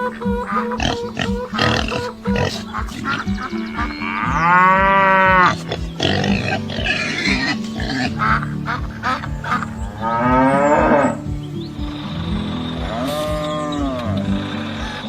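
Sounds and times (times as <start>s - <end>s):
farm animal calls: 0.0s - 11.8s
background music with steady beat: 0.0s - 15.0s.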